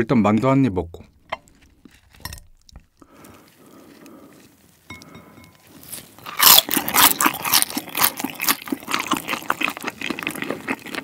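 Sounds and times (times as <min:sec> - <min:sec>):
crackling chewing: 0:01.3 - 0:11.0
crunchy bite into dumpling: 0:05.9 - 0:11.0.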